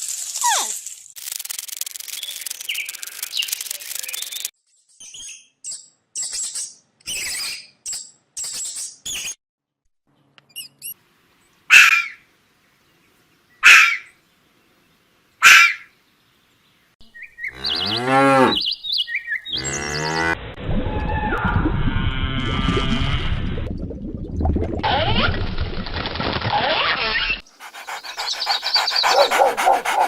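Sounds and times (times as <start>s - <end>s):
quick high animal chirps: 27.4s - 30.0s.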